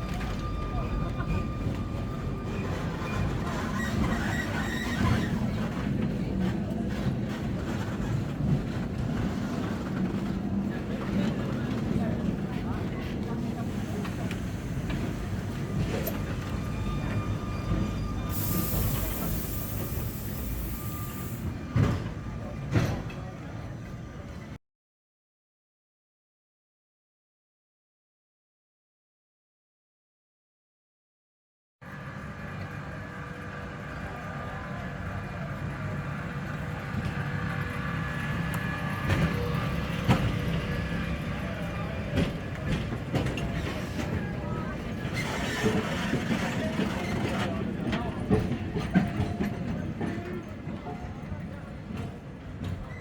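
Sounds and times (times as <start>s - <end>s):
tram rumbling on rails: 0.0s - 24.6s, 31.8s - 53.0s.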